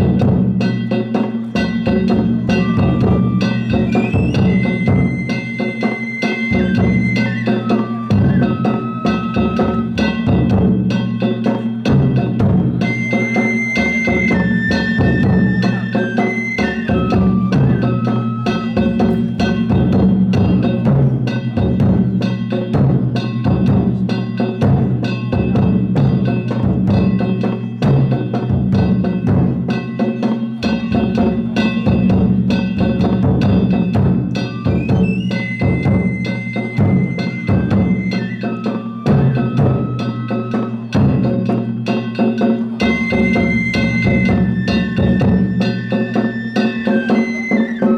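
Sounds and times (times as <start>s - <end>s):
taiko drums: 0.0s - 47.9s
high flute held notes: 1.8s - 10.6s, 12.7s - 19.8s, 34.3s - 41.5s, 42.8s - 47.9s.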